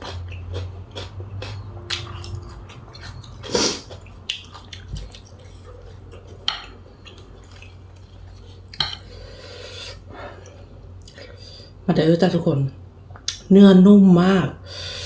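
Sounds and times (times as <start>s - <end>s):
wet chewing: 0.0s - 9.0s
low steady hum: 0.0s - 15.0s.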